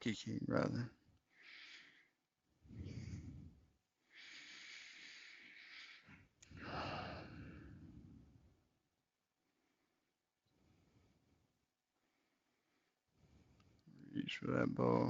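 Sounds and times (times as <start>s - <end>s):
person breathing slowly and deeply: 1.3s - 8.6s, 9.4s - 13.9s.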